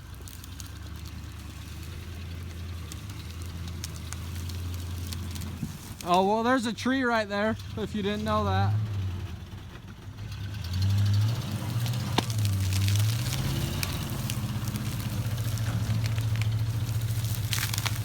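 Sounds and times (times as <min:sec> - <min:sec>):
sharp cracks: 0:00.0 - 0:06.6, 0:10.8 - 0:18.0
truck engine pulling under load: 0:00.0 - 0:18.0.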